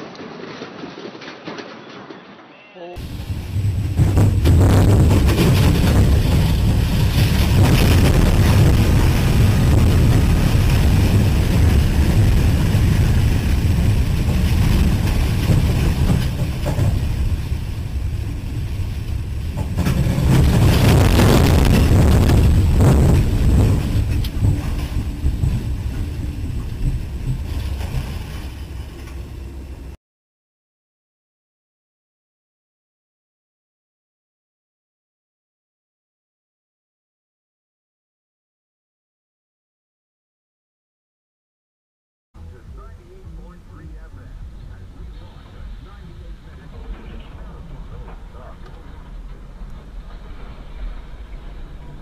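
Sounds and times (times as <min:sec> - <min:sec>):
freight train derailing rumble: 0:00.0 - 0:30.0, 0:42.4 - 0:52.0.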